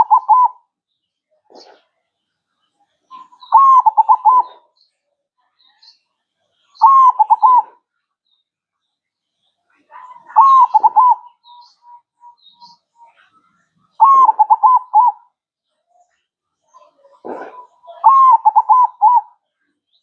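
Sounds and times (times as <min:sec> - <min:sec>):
dove cooing: 0:00.0 - 0:00.6, 0:03.1 - 0:04.6, 0:06.8 - 0:07.8, 0:10.0 - 0:11.6, 0:14.0 - 0:15.3, 0:16.8 - 0:19.4.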